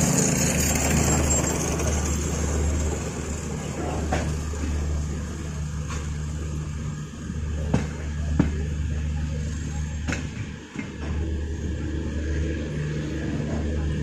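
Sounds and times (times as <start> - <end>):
wheels clacking over rail joints: 0.0 - 6.4
train coach rumble: 0.0 - 14.0.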